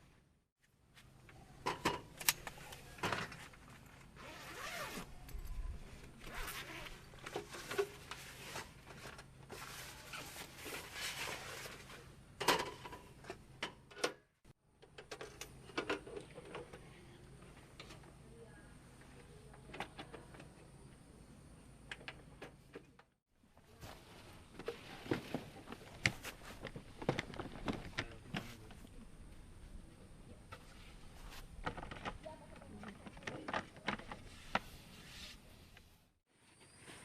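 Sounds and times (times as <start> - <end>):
zipper being pulled: 4.2 - 5.1, 6.2 - 7.1.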